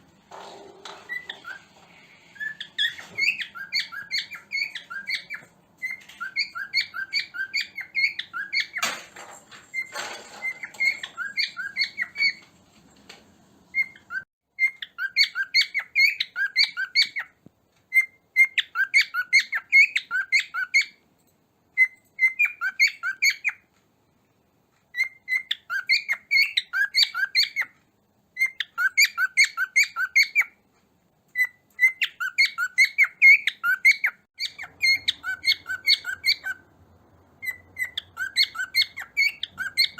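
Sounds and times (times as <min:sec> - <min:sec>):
cockatiel chirping: 0:00.8 - 0:09.0, 0:09.7 - 0:12.5, 0:13.7 - 0:21.0, 0:21.8 - 0:23.7, 0:24.9 - 0:30.6, 0:31.3 - 0:36.7, 0:37.4 - 0:39.9.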